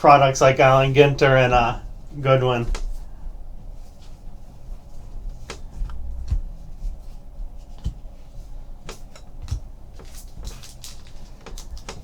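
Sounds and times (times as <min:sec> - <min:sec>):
cards clicking and slapping: 0:08.9 - 0:12.0.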